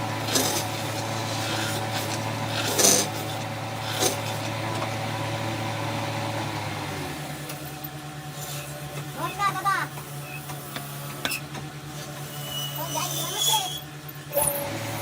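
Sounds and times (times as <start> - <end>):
power tool motor humming: 14.3 - 15.0.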